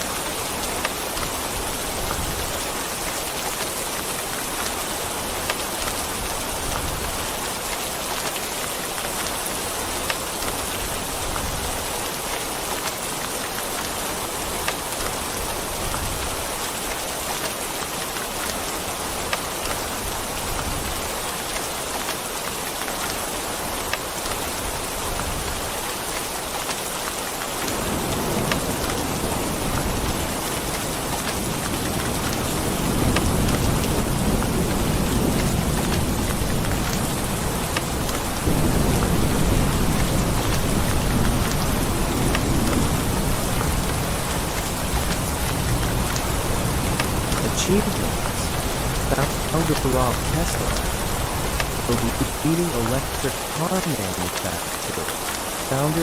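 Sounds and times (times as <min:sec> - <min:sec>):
rain falling on a surface: 0:00.0 - 0:56.0
sharp raindrop hits: 0:00.0 - 0:56.0
low thunder rumble: 0:27.7 - 0:52.4.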